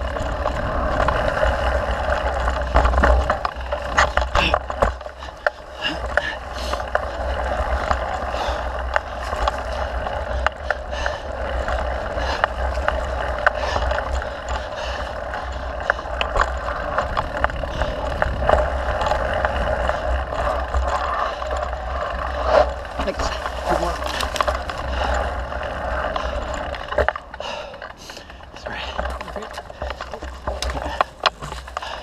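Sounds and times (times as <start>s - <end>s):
bike clicks and rattles: 0.0s - 32.0s
tyre noise on trail: 0.0s - 32.0s
wind rushing over microphone: 5.9s - 27.2s.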